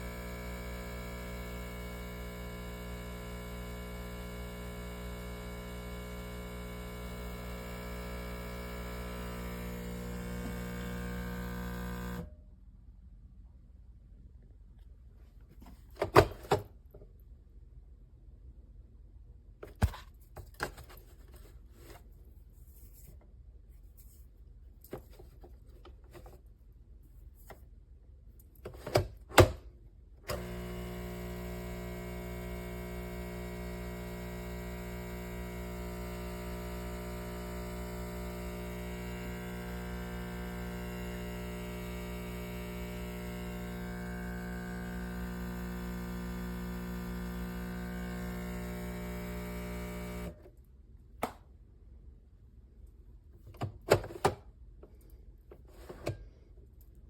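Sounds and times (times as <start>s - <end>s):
coffee machine pump buzzing: 0.0s - 12.3s, 30.2s - 50.4s.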